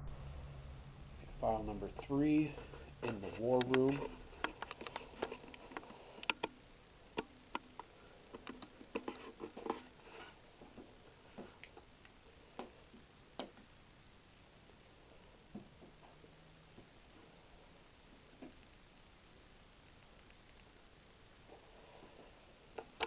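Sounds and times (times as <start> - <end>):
faint clicks and knocks: 2.5 - 13.7.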